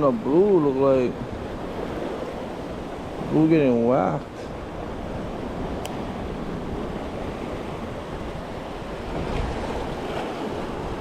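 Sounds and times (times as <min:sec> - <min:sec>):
ocean waves washing on shore: 0:00.0 - 0:11.0
wind noise on microphone: 0:00.0 - 0:11.0.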